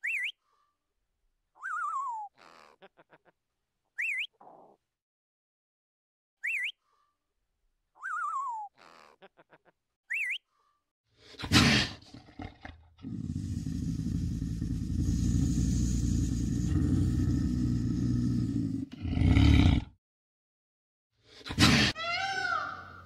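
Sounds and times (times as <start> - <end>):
whistled bird call: 0.0 - 0.4, 4.0 - 4.4, 6.4 - 6.8, 8.0 - 8.7, 10.1 - 10.4
wild cat growling: 11.4 - 20.0.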